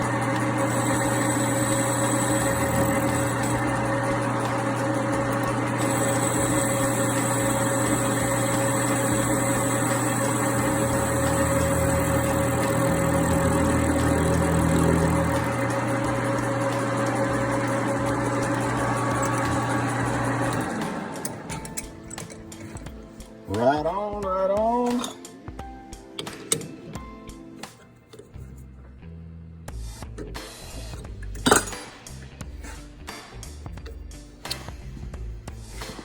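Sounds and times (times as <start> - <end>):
metal lathe cutting: 0.0 - 23.6.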